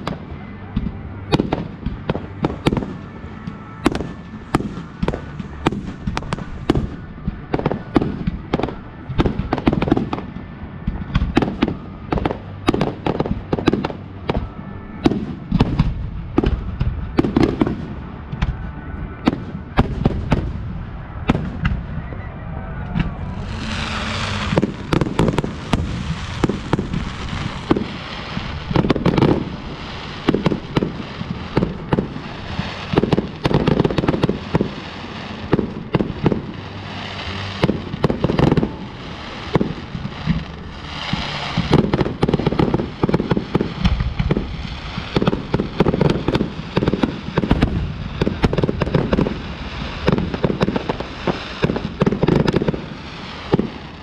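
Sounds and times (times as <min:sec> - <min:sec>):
fireworks bangs and launches: 0:00.0 - 0:22.2, 0:22.8 - 0:54.0
fireworks crackling hiss: 0:23.1 - 0:54.0.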